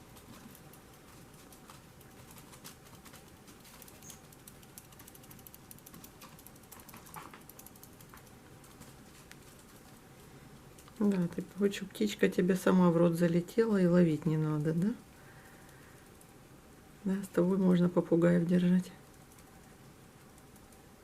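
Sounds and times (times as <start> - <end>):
cat toy clicking and rustling: 0.0 - 10.0.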